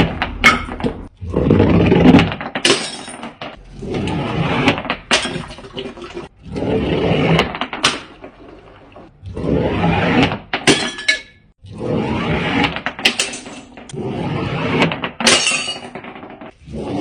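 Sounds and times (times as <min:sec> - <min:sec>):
glass bottles smashing: 0:02.6 - 0:03.3, 0:10.7 - 0:11.5, 0:15.2 - 0:15.9.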